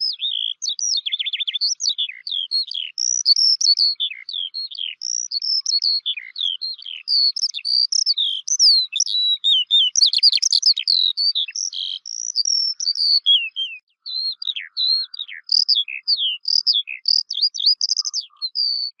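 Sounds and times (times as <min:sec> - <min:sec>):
songbird whistled chirps: 0:00.0 - 0:19.0.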